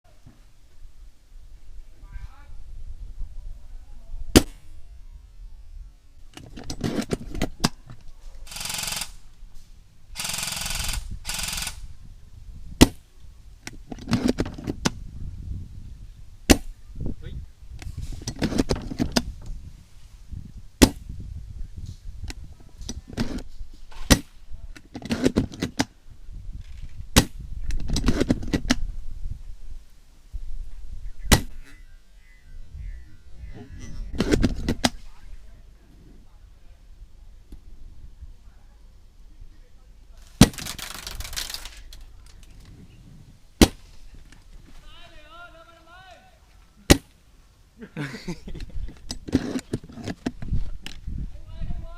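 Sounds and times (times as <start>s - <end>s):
airsoft gun shots: 4.3s - 4.6s, 20.8s - 21.0s, 43.6s - 43.9s, 46.9s - 47.1s
short hiss bursts: 8.5s - 11.9s.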